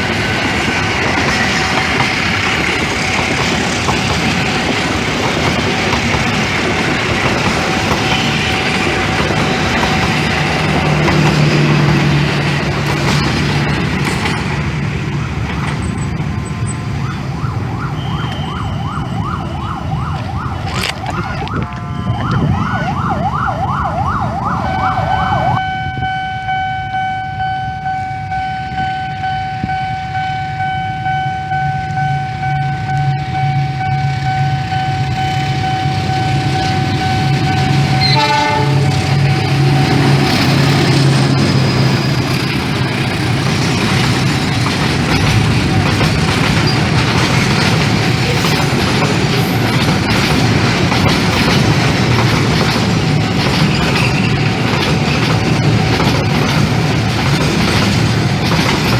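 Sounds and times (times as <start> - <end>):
rumbling train: 0.0 - 58.9
electronic siren: 16.6 - 43.3.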